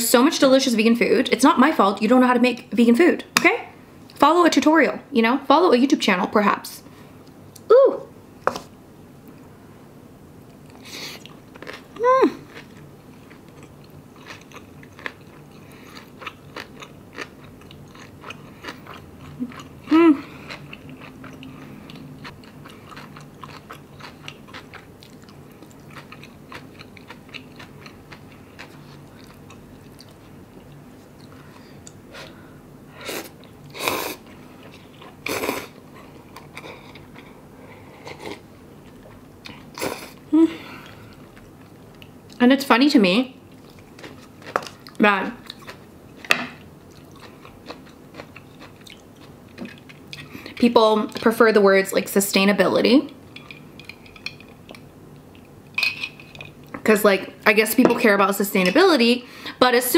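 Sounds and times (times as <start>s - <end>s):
person humming mm: 12.0s - 12.4s, 19.9s - 20.4s
chewing with wet mouth clicks: 12.5s - 19.8s, 20.4s - 32.0s, 46.6s - 51.2s, 53.1s - 55.6s.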